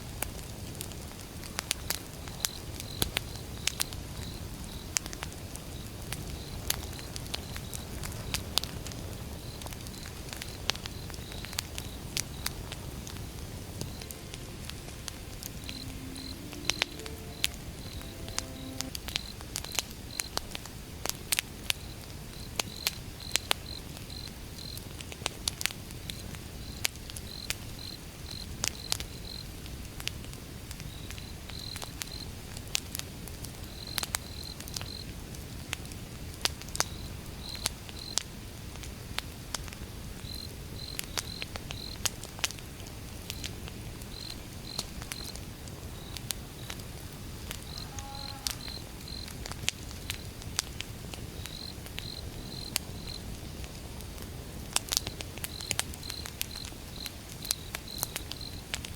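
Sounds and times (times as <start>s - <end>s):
wood fire crackling: 0.0s - 17.6s, 49.2s - 58.9s.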